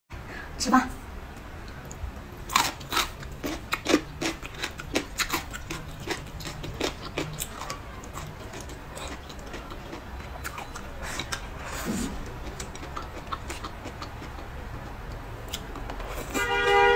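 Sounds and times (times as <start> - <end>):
chewing: 1.7 - 16.4
wet mouth clicks and smacks: 12.2 - 16.4.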